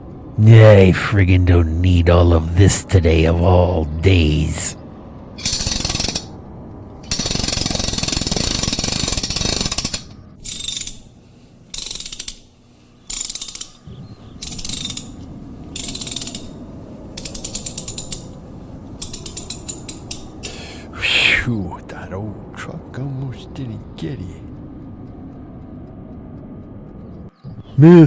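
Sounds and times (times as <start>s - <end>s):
mechanical clattering and ratcheting: 5.4s - 6.3s, 7.0s - 11.1s, 11.7s - 12.4s, 13.1s - 13.8s, 15.8s - 16.6s, 17.2s - 18.2s.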